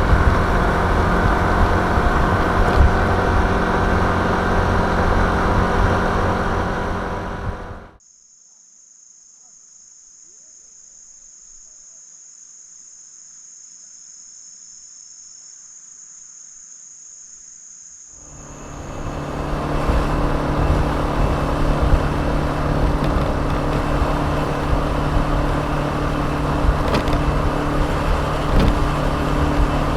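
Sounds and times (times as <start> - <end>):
scooter engine and road noise: 0.0 - 8.0, 18.2 - 29.9
crickets chirring: 8.0 - 29.9.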